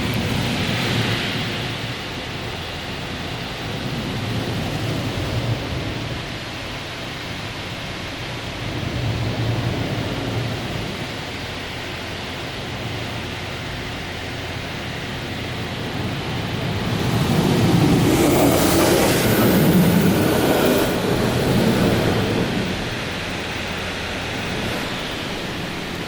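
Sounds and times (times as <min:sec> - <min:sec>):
car wash spraying water: 0:00.0 - 0:26.0.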